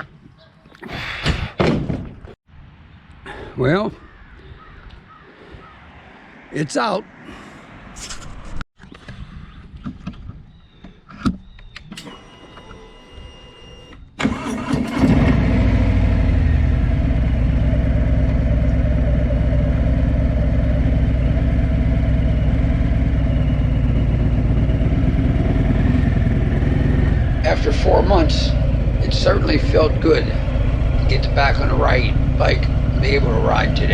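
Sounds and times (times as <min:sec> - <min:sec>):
motorcycle engine starting and idling: 0:11.9 - 0:33.9.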